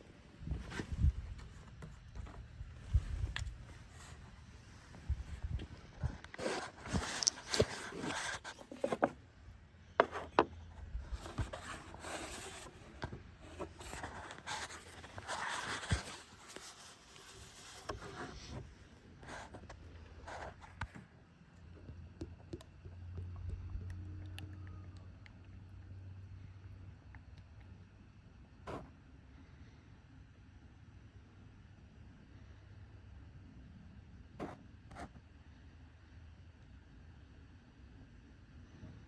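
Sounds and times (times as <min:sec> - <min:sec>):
low steady hum: 0:00.0 - 0:39.0
scraping and rubbing of tools: 0:06.3 - 0:09.2.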